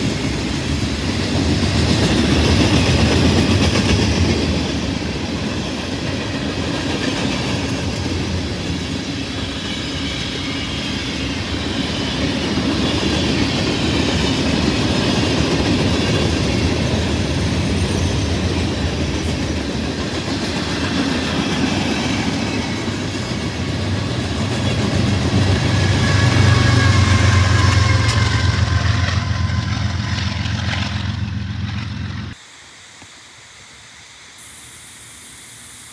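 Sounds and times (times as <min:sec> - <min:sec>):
freight train wheels clattering: 0:11.8 - 0:32.4.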